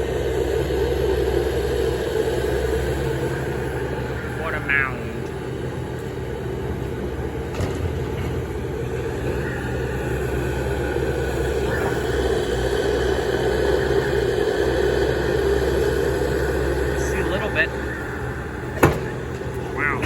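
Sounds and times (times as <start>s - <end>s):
diesel excavator engine rumbling: 0.0s - 20.0s.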